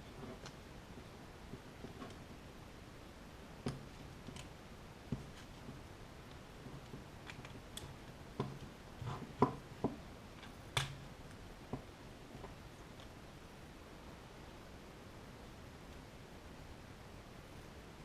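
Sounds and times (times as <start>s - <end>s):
small tools and plastic clicks: 3.7s - 4.5s.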